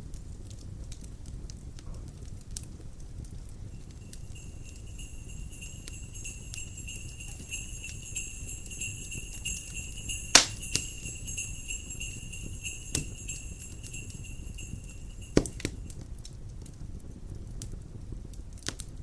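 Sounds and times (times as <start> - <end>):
crackling wood fire: 0.0 - 19.0
low wind rumble: 3.5 - 15.4
small sleigh bells shaking: 3.6 - 15.9.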